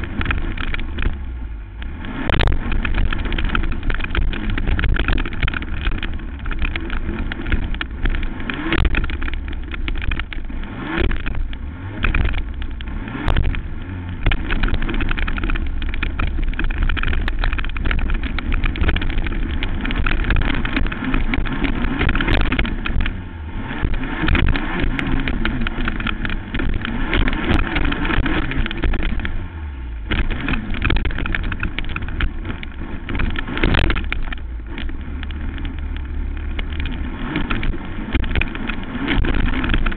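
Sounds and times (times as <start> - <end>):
knocks and jolts: 0.0 - 29.4
racing quad engine revving: 0.0 - 39.9.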